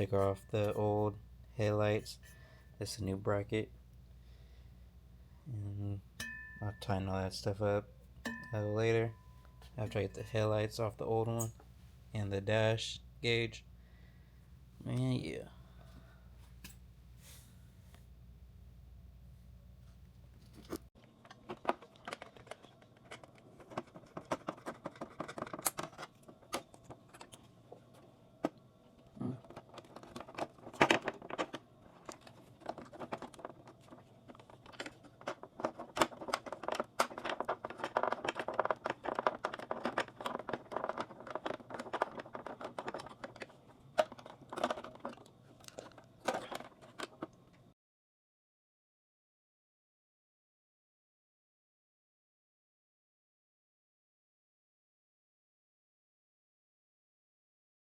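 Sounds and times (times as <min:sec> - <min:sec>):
low steady hum: 0:00.0 - 0:24.5
clicks taps and scraping of parts: 0:20.6 - 0:47.6
rustling: 0:28.9 - 0:47.3.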